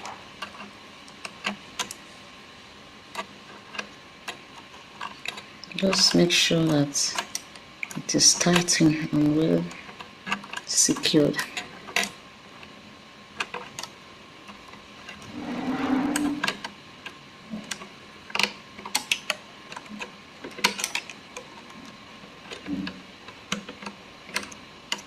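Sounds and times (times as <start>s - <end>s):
brief grinding whirring: 15.2s - 16.5s.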